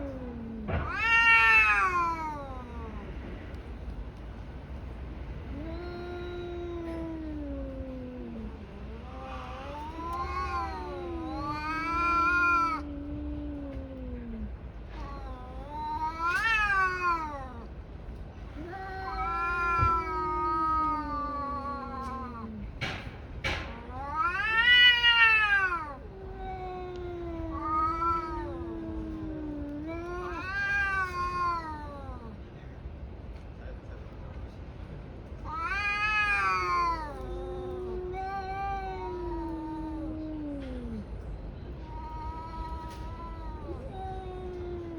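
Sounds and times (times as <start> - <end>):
cat higher wail: 0.0 - 3.1, 5.5 - 17.7, 18.6 - 22.7, 23.7 - 32.4, 35.5 - 41.0
cat low wavering yowl: 0.0 - 3.4, 5.5 - 17.7, 18.6 - 22.9, 23.6 - 32.4, 35.5 - 44.9.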